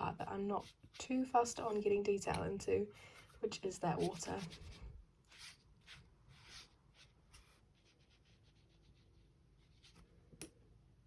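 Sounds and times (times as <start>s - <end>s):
brush swishing on paper: 3.2s - 10.0s.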